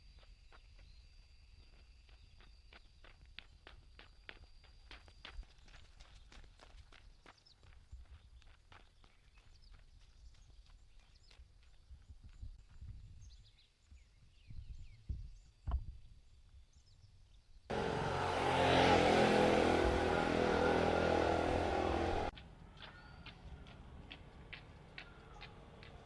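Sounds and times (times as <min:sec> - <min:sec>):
vehicle engine running loudly: 0:17.7 - 0:22.3.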